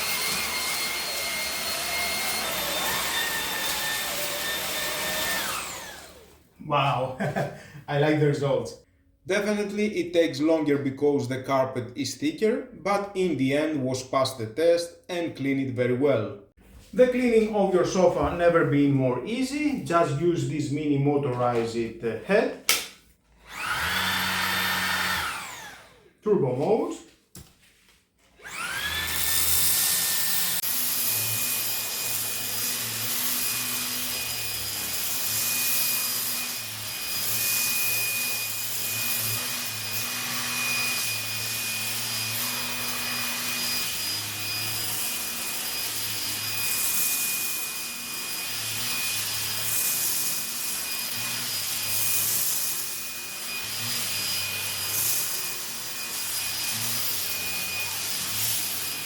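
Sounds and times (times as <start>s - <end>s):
vacuum motor high whine: 23.5s - 26.0s.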